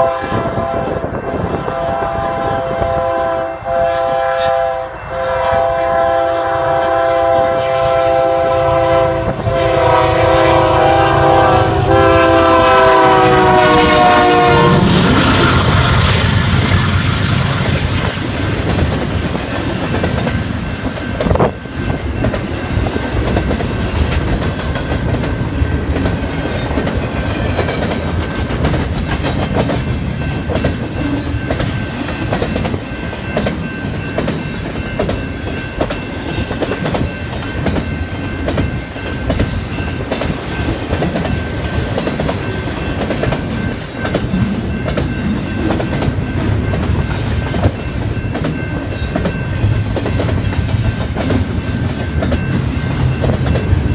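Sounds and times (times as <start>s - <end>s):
train rumble: 0.0s - 53.9s
train wheels clicking over rail joints: 15.0s - 53.9s.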